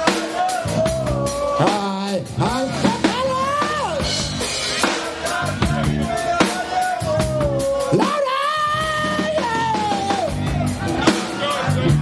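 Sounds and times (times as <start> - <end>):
drum kit beat: 0.0 - 12.0.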